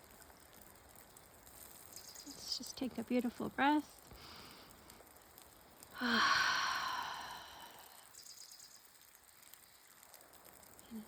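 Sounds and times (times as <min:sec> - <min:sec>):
woman sighing: 0:06.0 - 0:08.1.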